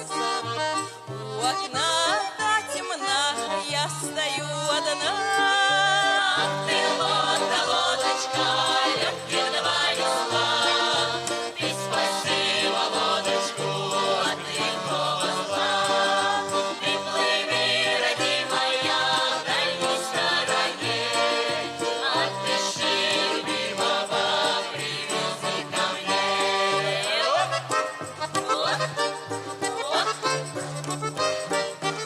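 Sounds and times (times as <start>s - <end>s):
accordion folk music: 0.0s - 32.0s.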